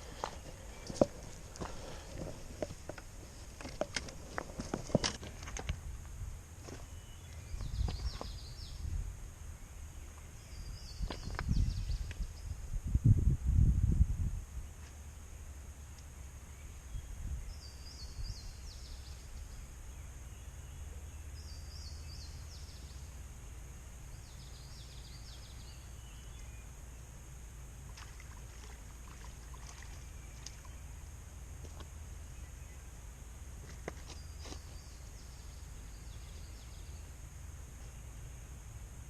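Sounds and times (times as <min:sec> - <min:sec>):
low steady rumble: 0:00.0 - 0:39.0.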